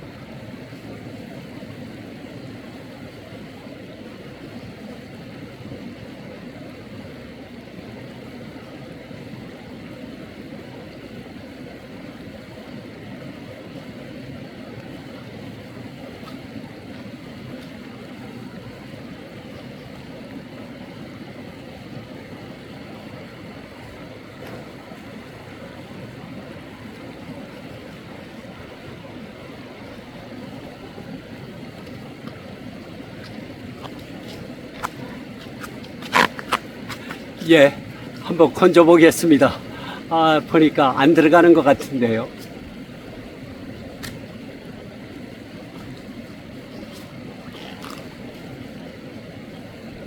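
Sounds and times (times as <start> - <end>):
stream water rushing: 0.0 - 50.0.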